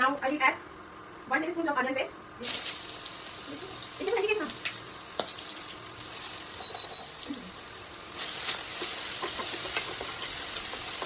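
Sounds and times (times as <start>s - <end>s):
onion paste sizzling in oil: 2.4s - 11.0s.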